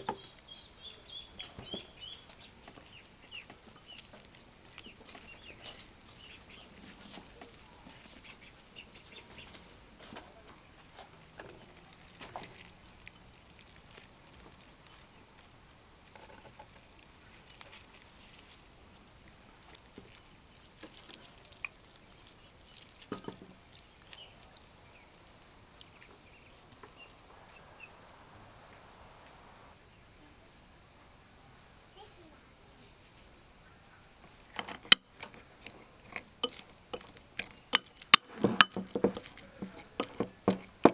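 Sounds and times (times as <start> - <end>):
steady high-pitched hiss: 0.0 - 40.9
light clicks and knocks: 34.3 - 40.9.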